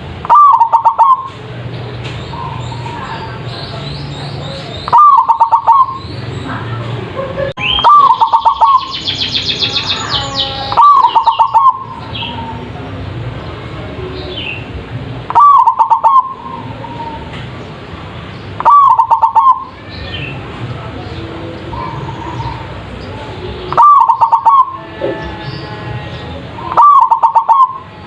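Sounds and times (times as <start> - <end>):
dove cooing: 0.2 - 1.4, 4.4 - 6.0, 7.7 - 8.9, 10.7 - 12.6, 15.3 - 17.3, 18.6 - 19.8, 21.6 - 25.5, 26.3 - 27.9
small bird twittering: 2.0 - 6.5, 7.6 - 12.6.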